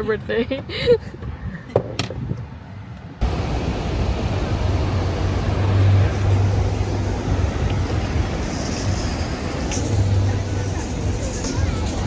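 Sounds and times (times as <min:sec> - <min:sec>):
deep low rumble: 0:03.2 - 0:12.0
loud rushing noise: 0:03.2 - 0:12.0.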